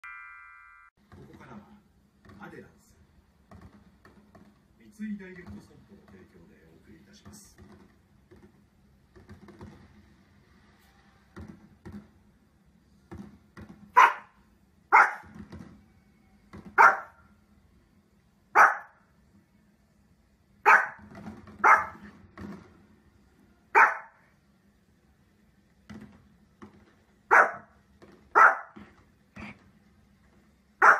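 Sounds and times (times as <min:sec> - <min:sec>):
small dog barking: 0:14.0 - 0:15.3, 0:16.8 - 0:17.2, 0:18.5 - 0:19.0, 0:20.6 - 0:21.0, 0:21.6 - 0:22.1, 0:23.7 - 0:24.2, 0:27.3 - 0:27.7, 0:28.3 - 0:28.8.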